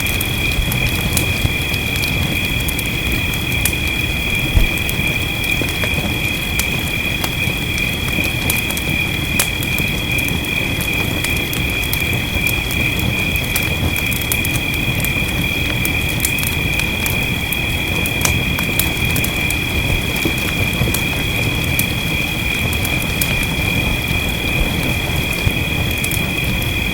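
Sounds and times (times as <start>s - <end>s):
rain: 0.0s - 26.9s
wood fire crackling: 0.0s - 26.9s.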